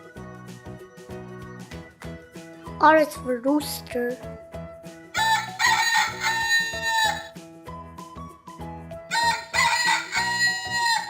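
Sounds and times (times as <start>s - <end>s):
children's background music: 0.0s - 11.0s
rooster crowing: 5.2s - 7.3s, 9.1s - 11.0s.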